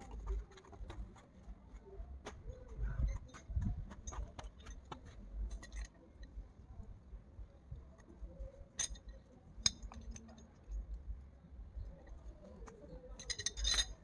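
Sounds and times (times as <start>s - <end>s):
plumbing fittings clicking and clinking: 13.2s - 14.0s.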